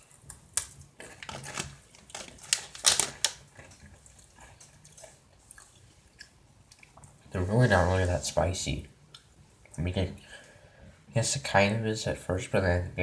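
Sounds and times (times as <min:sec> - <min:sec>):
crunching and chewing crackers: 0:00.0 - 0:07.3.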